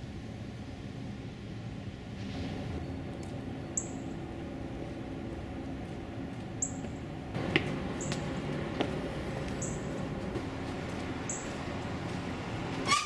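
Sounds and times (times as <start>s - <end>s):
outdoor background hum: 0.0s - 13.0s
small bird chirping: 3.7s - 4.2s, 9.6s - 9.9s, 11.3s - 11.5s
footsteps on concrete steps: 5.8s - 12.4s.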